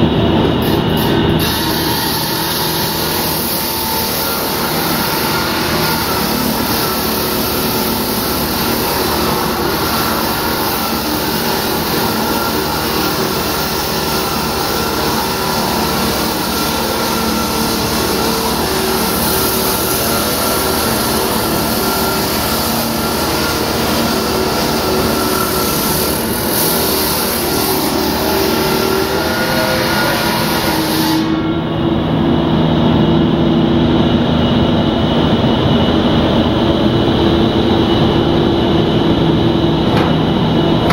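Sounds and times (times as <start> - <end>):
loud machine with held tones: 0.0 - 29.4.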